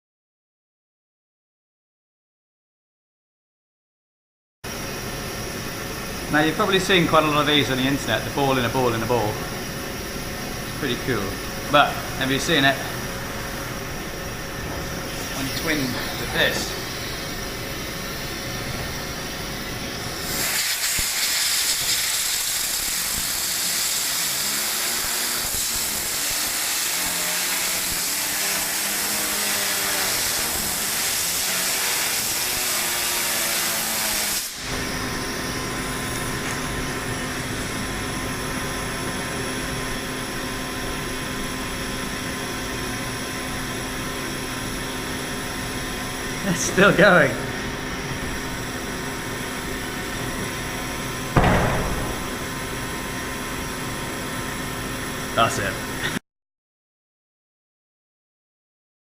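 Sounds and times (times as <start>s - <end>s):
steady hum: 4.7s - 20.6s, 45.7s - 55.8s
compressed air jet hissing: 20.2s - 32.5s, 34.0s - 34.7s.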